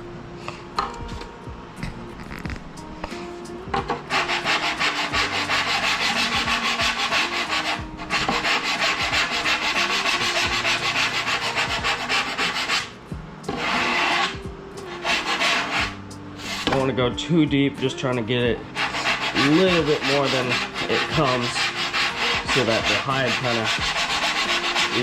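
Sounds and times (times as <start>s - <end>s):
hand file rasping on foam: 4.1s - 12.9s, 13.5s - 16.6s, 18.7s - 25.0s.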